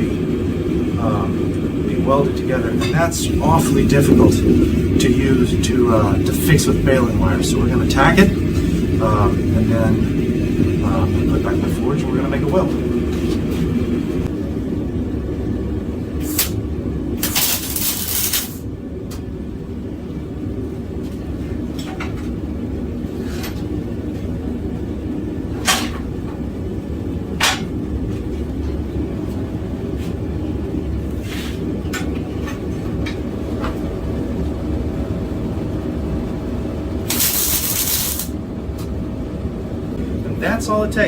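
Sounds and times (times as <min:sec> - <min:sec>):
forge burner roaring: 0:00.0 - 0:41.0
arc welder crackling hiss: 0:16.2 - 0:16.6, 0:17.2 - 0:18.7, 0:37.0 - 0:38.4.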